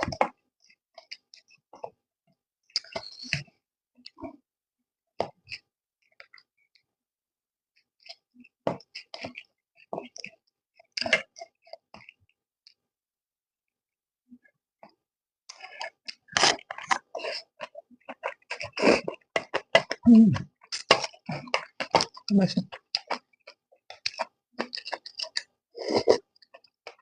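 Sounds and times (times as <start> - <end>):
chewing and mouth clicks: 0.0 - 1.6, 2.7 - 4.4, 7.8 - 12.8, 15.5 - 27.0.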